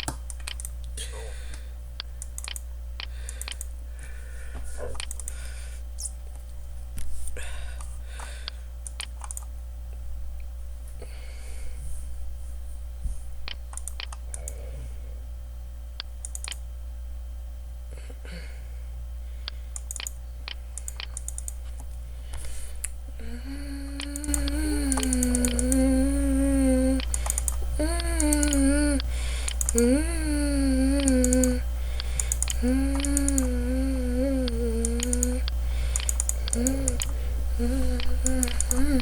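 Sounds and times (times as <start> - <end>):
keyboard and mouse clicks: 0.0 - 0.9, 2.0 - 3.7, 4.9 - 5.4, 7.8 - 9.5, 13.5 - 14.6, 16.0 - 16.6, 19.5 - 22.0, 24.0 - 25.8, 27.0 - 29.9, 31.0 - 33.5, 34.4 - 37.2, 37.9 - 39.0
low background hum: 0.0 - 39.0
person humming: 23.1 - 35.6, 36.4 - 39.0.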